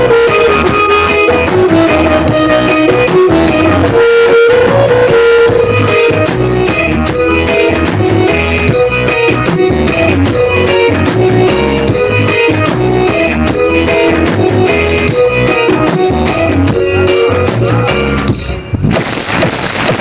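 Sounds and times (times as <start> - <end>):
loud music with heavy bass: 0.0 - 20.0.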